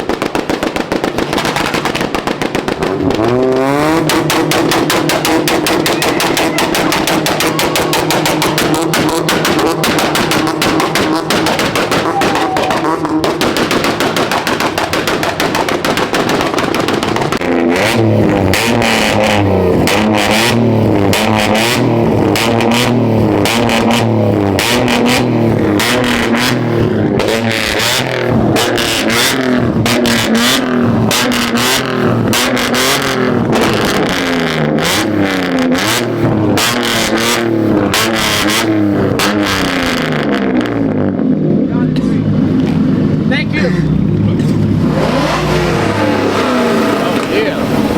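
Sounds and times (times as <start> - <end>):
sharp cracks: 0.0 - 41.0
car engine revving: 0.0 - 47.9
exhaust pops stuttering: 0.0 - 47.9.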